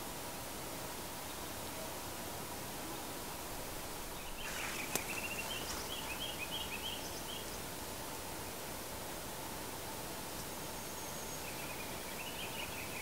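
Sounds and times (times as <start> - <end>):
rustle: 0.0 - 13.0
steady outdoor hiss: 0.0 - 13.0
small bird chirping: 4.2 - 7.7.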